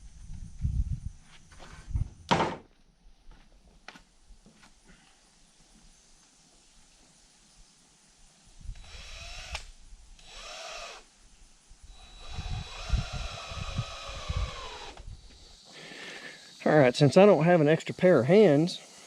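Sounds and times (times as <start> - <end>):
wood thudding: 2.3 - 2.7
cordless drill driving screws: 8.8 - 11.1, 11.9 - 15.2.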